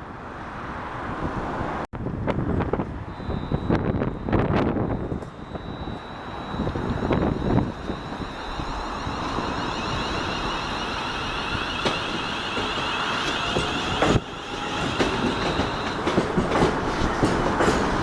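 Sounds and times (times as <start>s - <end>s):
train rumbling on rails: 0.2s - 18.0s
thin high whine: 3.1s - 16.0s.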